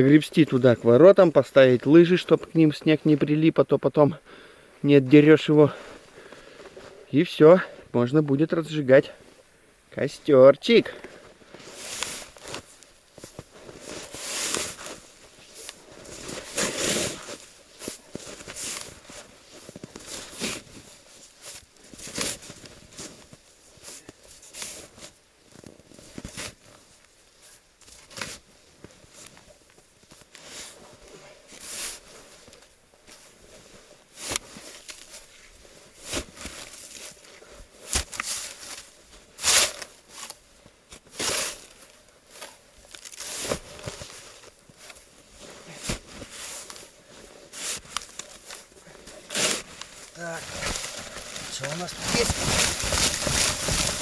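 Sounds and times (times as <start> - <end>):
shovel scraping and crunching snow: 11.4 - 23.3, 34.1 - 40.4, 41.0 - 54.0.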